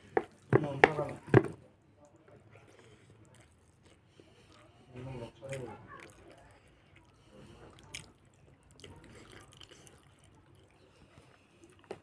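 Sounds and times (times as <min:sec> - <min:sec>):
wet chewing and lip smacks: 0:02.1 - 0:12.0.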